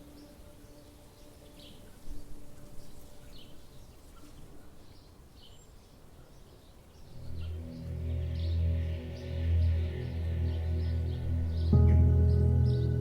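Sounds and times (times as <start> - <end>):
birds chirping: 0.0 - 13.0
faint background hiss: 0.0 - 13.0
deep sustained music tones: 7.0 - 13.0.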